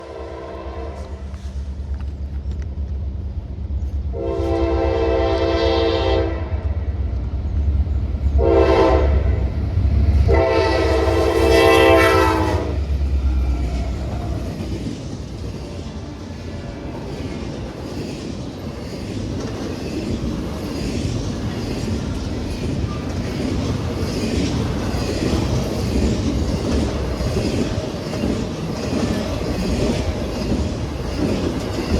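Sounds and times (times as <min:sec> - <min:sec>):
locomotive air horn: 0:00.0 - 0:01.3, 0:04.1 - 0:06.6, 0:08.4 - 0:09.4, 0:10.3 - 0:12.8
locomotive engines rumbling: 0:00.0 - 0:31.9
train cars rolling on rails: 0:00.0 - 0:31.9.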